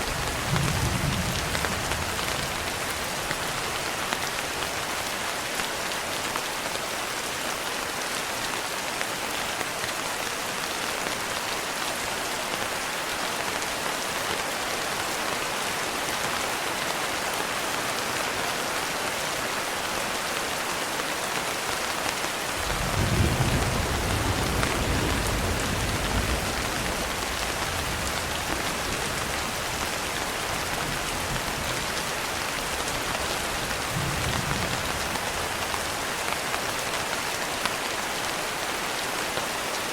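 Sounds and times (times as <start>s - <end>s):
rain pattering on a window: 0.0s - 39.9s
thunder rumbling: 0.1s - 3.3s, 22.6s - 29.8s, 33.4s - 36.0s.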